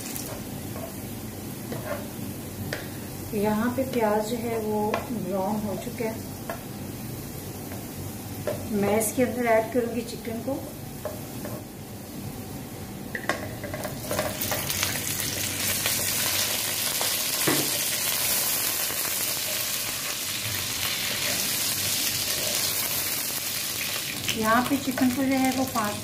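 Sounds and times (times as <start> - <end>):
chicken sizzling in hot oil: 0.0 - 12.3, 13.5 - 26.0
wooden spatula stirring pan: 1.7 - 2.1.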